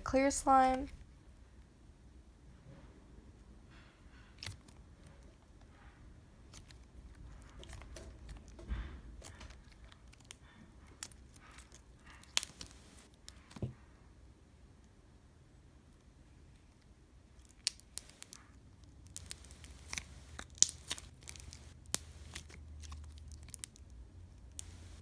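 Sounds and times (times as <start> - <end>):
slime clicking and crackling: 6.4 - 8.6, 9.2 - 13.5, 17.4 - 25.0
slime popping: 11.6 - 13.0, 17.6 - 23.8.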